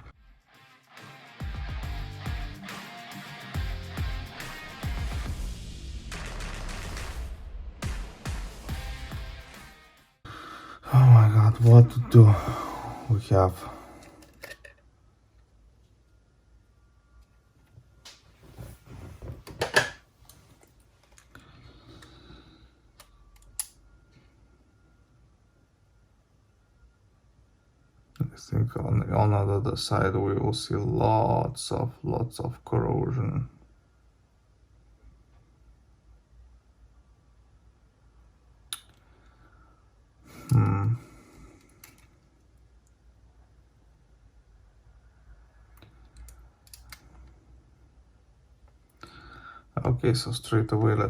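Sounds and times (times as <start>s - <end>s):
clicks of small parts handled: 14.0s - 14.8s, 41.6s - 42.2s.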